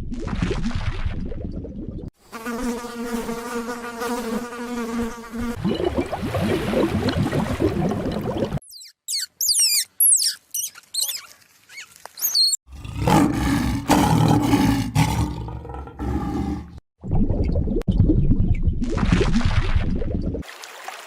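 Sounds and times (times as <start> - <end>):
high quick chirps: 8.6 - 12.6
tiger roaring: 12.7 - 16.8.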